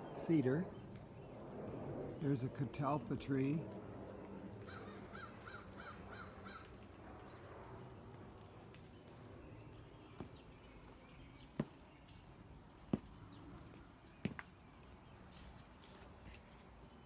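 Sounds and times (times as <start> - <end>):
bird calling: 4.7 - 6.8.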